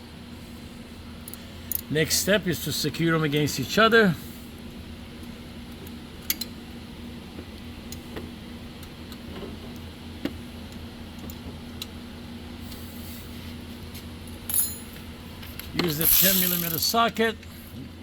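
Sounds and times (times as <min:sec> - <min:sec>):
wrench clicks on nuts: 0:16.0 - 0:16.8.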